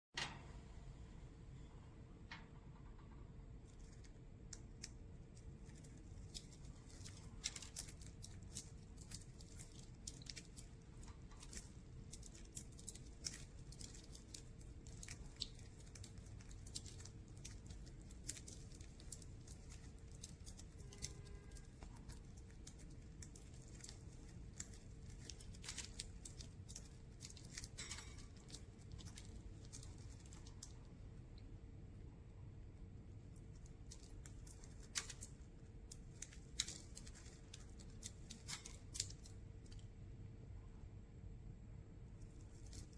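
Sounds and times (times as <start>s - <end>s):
low steady hum: 0.2s - 42.9s
birds pecking seeds: 3.7s - 31.1s, 33.3s - 40.0s.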